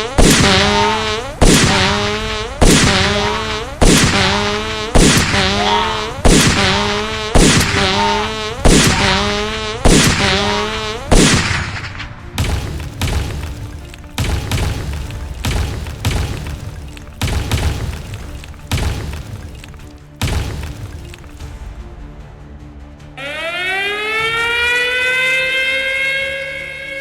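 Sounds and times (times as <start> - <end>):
cartoon tank gun firing: 0.0 - 21.5.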